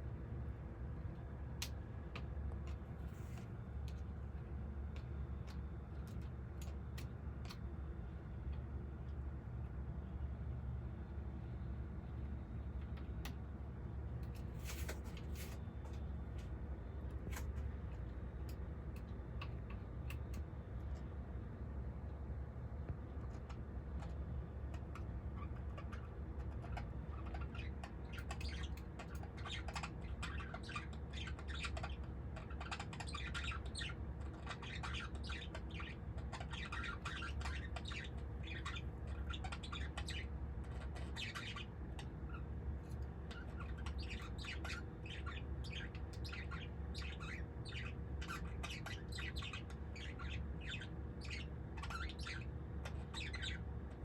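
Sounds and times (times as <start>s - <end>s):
birds chirping and squawking: 14.2s - 21.1s, 23.1s - 54.0s.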